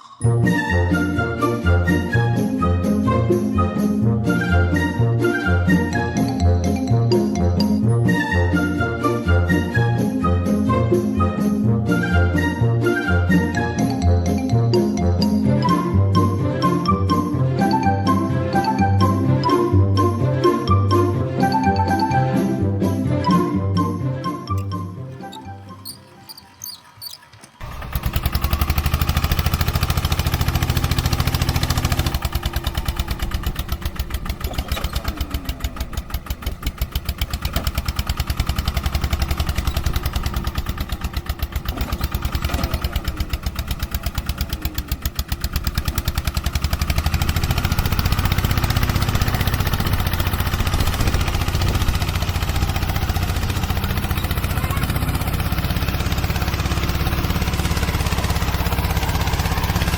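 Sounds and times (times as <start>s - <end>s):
small engine chugging: 23.8s - 59.9s.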